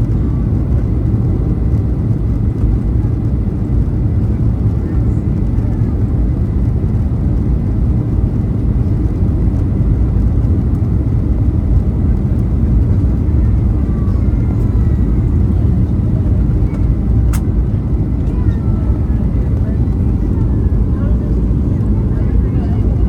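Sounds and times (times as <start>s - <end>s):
aircraft cabin rumble: 0.0s - 23.0s.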